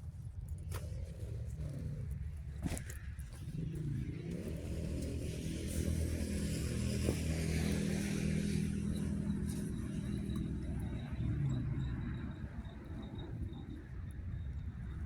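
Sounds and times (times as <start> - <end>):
vehicle engine running: 1.1 - 13.5.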